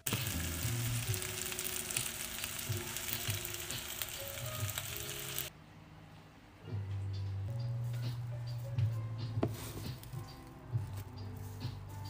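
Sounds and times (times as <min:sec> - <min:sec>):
food sizzling in a frying pan: 0:00.0 - 0:05.5.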